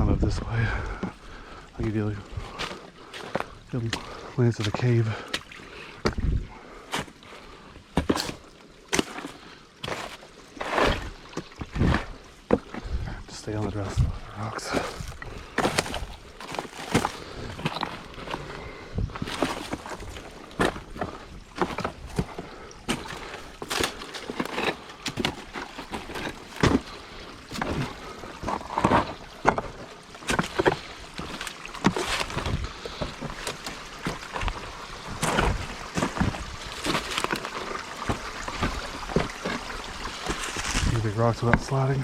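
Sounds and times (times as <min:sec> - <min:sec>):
boots crunching on loose stones: 0:01.8 - 0:07.3, 0:07.9 - 0:12.9, 0:13.5 - 0:42.0.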